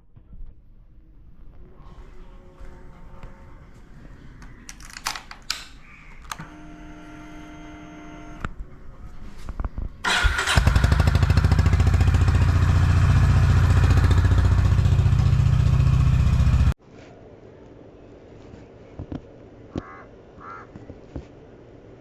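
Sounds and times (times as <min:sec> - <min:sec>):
motorcycle engine idling: 0:06.6 - 0:16.8.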